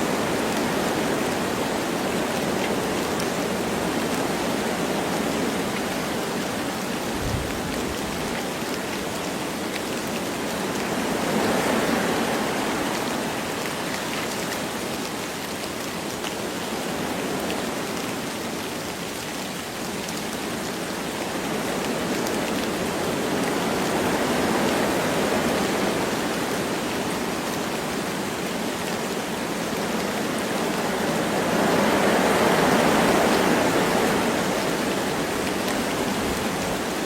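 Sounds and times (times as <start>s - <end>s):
light rain: 0.0s - 37.0s
wind through trees: 0.0s - 37.0s.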